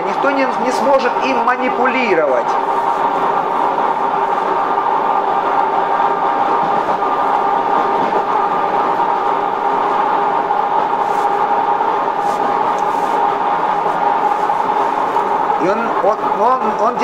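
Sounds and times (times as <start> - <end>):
constant whine: 0.0 - 17.0
train running noise: 0.0 - 17.0.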